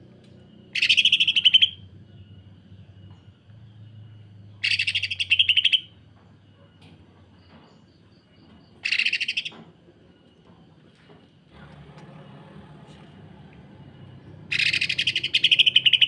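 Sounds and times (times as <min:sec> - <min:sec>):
bird rattling harsh calls: 0:08.8 - 0:09.5, 0:14.5 - 0:16.0.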